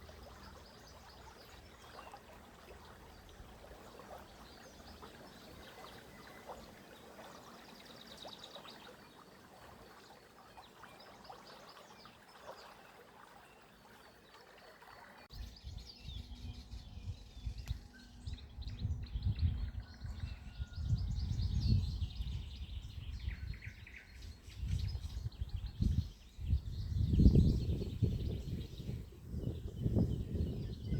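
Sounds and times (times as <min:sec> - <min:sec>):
running water: 0:00.0 - 0:15.4
small birds chirping and singing: 0:15.2 - 0:30.9.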